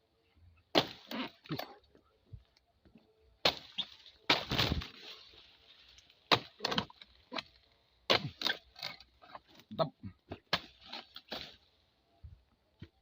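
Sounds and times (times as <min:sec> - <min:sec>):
blade chopping palm fronds: 0:00.7 - 0:01.7, 0:03.4 - 0:05.4, 0:06.2 - 0:09.5, 0:10.3 - 0:11.6
fronds crashing down: 0:03.4 - 0:07.0.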